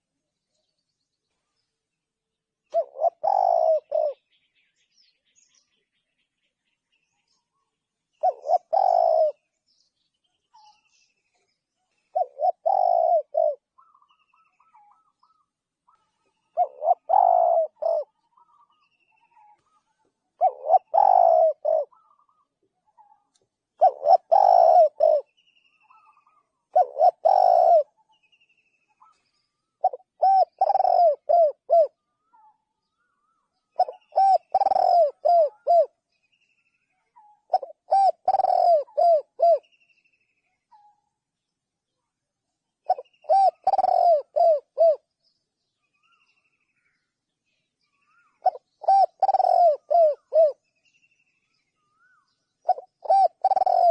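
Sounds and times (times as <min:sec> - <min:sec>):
dove cooing: 0:02.7 - 0:04.4, 0:08.2 - 0:09.5, 0:12.1 - 0:18.8, 0:20.4 - 0:23.2, 0:23.8 - 0:28.0, 0:29.0 - 0:32.4, 0:33.8 - 0:36.0, 0:37.1 - 0:39.7, 0:42.8 - 0:45.1, 0:48.1 - 0:50.6, 0:52.6 - 0:53.9.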